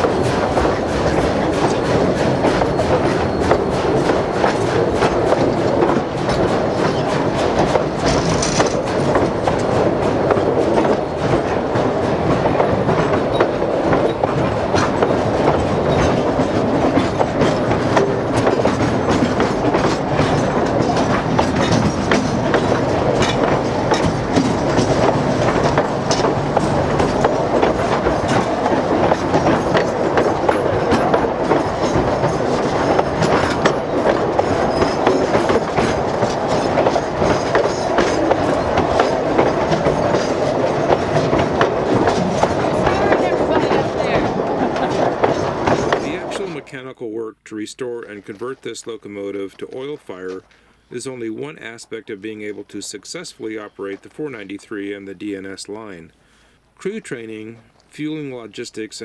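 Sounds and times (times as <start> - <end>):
train wheels clicking over rail joints: 0.0 - 47.0.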